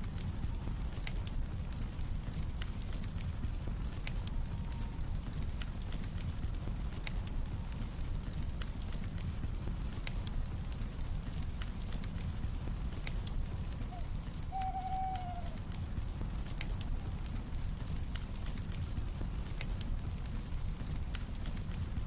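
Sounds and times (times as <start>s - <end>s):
campfire crackling and popping: 0.0s - 22.0s
crickets chirring: 0.0s - 22.0s
owl hooting: 13.9s - 15.6s.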